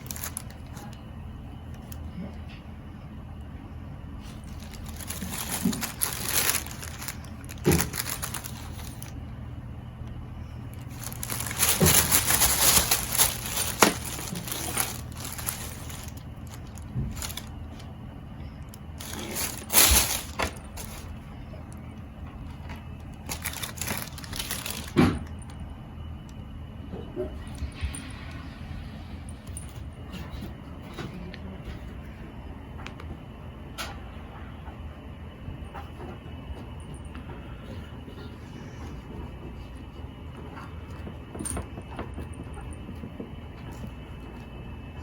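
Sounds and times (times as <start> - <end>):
rustling and crinkling: 0.0 - 2.7, 4.2 - 9.4, 10.0 - 25.6, 35.8 - 45.0
steady low hum: 0.0 - 45.0.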